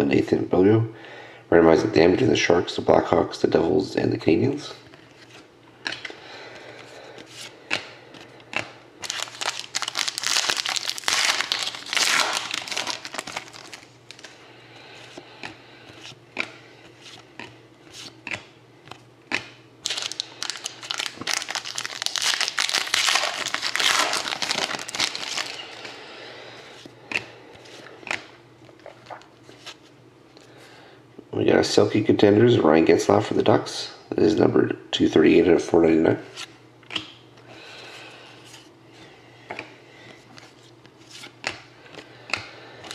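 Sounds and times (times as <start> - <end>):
wrapper tearing and crinkling: 9.0 - 14.3, 19.8 - 25.8.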